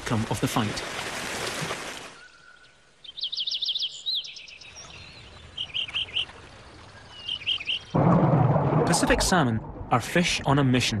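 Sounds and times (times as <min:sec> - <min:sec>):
small bird chirping: 0:02.2 - 0:06.3.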